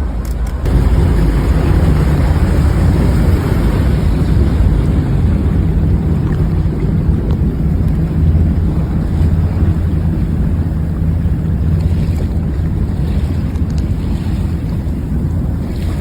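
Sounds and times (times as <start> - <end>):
boat engine droning: 0.0 - 16.0
rushing water: 0.0 - 16.0
wind buffeting microphone: 0.0 - 16.0.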